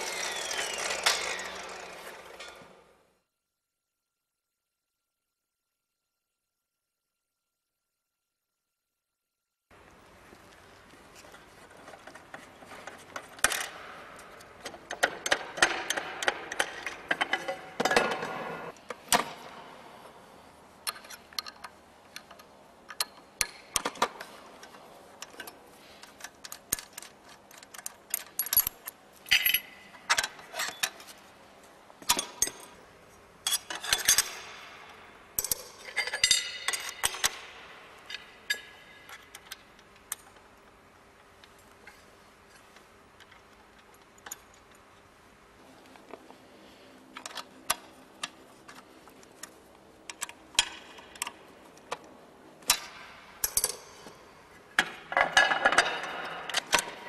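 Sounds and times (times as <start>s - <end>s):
metal clicks and clinks: 26.2s - 31.0s, 52.7s - 54.0s.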